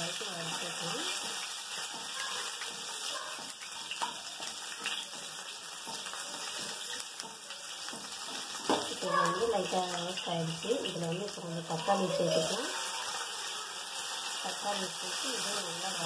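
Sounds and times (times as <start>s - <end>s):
onion sizzling in hot oil: 0.0s - 16.0s
wooden spatula scraping and tapping: 0.4s - 10.0s.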